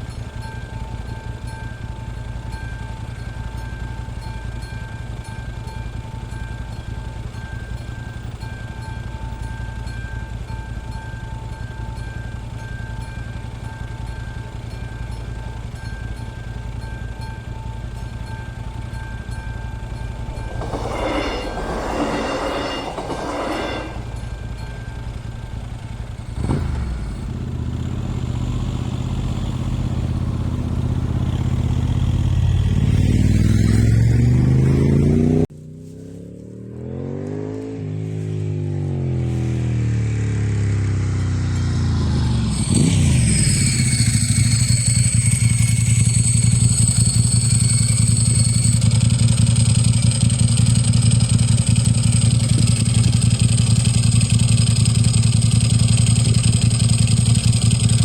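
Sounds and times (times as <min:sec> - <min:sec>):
engine climbing in pitch: 0:00.0 - 0:58.0
steady engine hum: 0:00.0 - 0:58.0
high steady tones: 0:00.4 - 0:26.4, 0:42.2 - 0:58.0
vehicle passing: 0:30.3 - 0:41.4.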